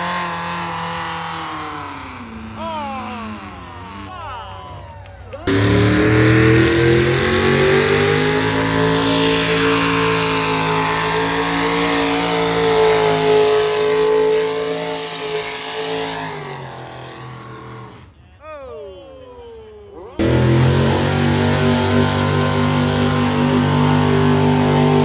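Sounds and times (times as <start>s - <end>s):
engine running hard under load: 5.5s - 18.1s, 20.2s - 25.0s.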